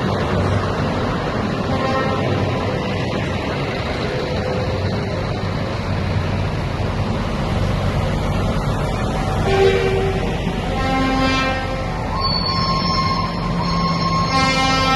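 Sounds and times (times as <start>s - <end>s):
diesel truck engines: 0.0s - 14.9s
truck horn blast: 1.7s - 2.4s, 9.4s - 14.9s.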